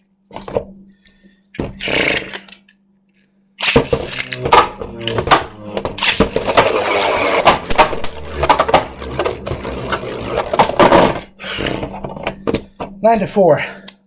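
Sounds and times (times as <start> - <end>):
spinning tops clashing: 3.6 - 11.2.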